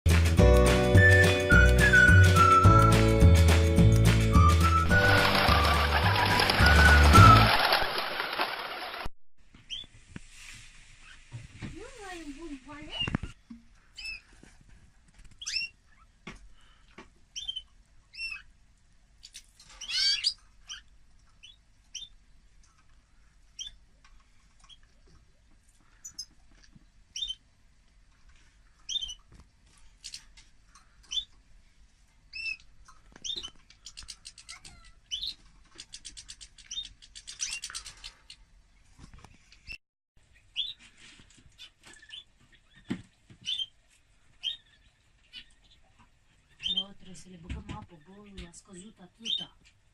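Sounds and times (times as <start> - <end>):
finches chirping and trilling: 15.4 - 16.1, 17.4 - 18.5, 19.2 - 22.2, 28.9 - 29.2, 33.2 - 38.4, 44.4 - 45.8, 46.5 - 46.9, 49.2 - 49.5.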